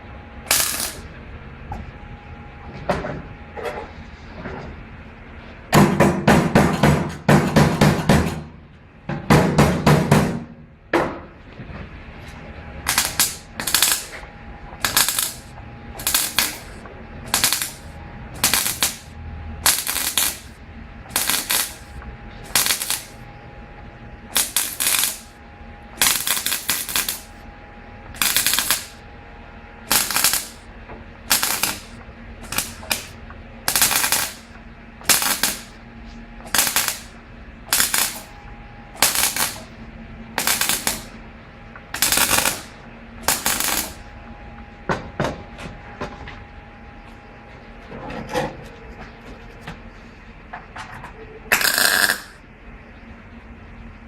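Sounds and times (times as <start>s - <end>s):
mechanical rattling bursts: 0.5s - 1.0s, 12.8s - 14.1s, 14.8s - 21.9s, 22.5s - 23.2s, 24.3s - 25.3s, 26.0s - 27.3s, 28.2s - 29.0s, 29.9s - 30.6s, 31.3s - 34.5s, 35.1s - 35.8s, 36.5s - 37.1s, 37.7s - 38.3s, 39.0s - 39.7s, 40.4s - 41.2s, 41.9s - 44.0s, 51.5s - 52.4s.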